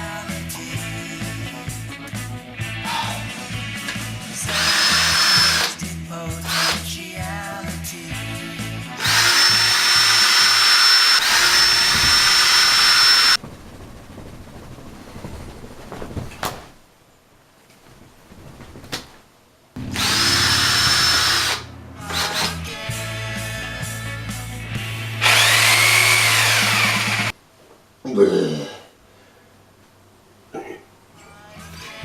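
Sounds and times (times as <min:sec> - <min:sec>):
electric drill whining: 0:04.4 - 0:05.8, 0:06.4 - 0:06.9, 0:08.9 - 0:13.4, 0:19.8 - 0:22.8, 0:25.1 - 0:27.3.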